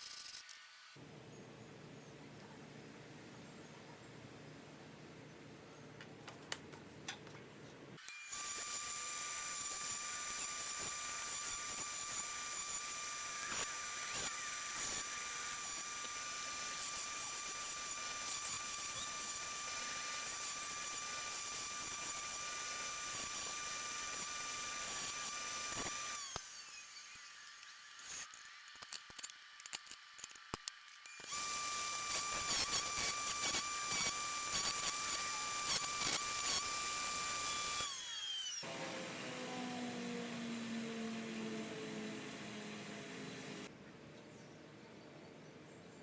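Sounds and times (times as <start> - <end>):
power tool whining: 8.0 - 29.3, 31.0 - 43.7.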